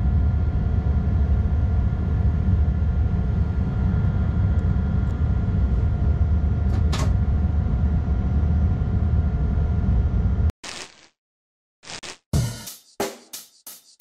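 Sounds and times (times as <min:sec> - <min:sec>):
freight train rumbling: 0:00.0 - 0:10.5.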